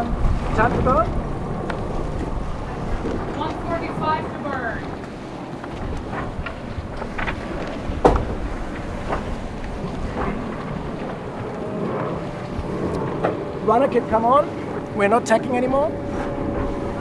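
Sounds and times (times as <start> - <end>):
water noise: 0.0 - 17.0
wind on microphone: 0.0 - 17.0
knocks on boat: 5.7 - 11.5
sharp thump: 8.0 - 8.5.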